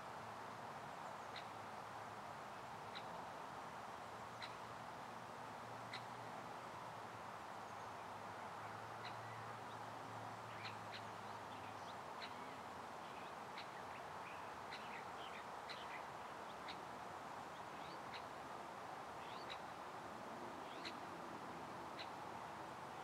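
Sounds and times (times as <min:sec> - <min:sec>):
background hiss: 0:00.0 - 0:23.0
small birds chirping: 0:10.5 - 0:16.8.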